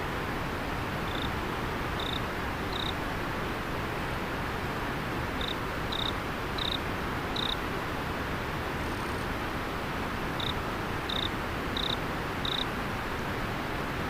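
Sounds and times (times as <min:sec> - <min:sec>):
insect chirping: 0:01.1 - 0:01.3, 0:02.0 - 0:03.0, 0:05.4 - 0:06.8, 0:07.4 - 0:07.6, 0:10.4 - 0:12.7.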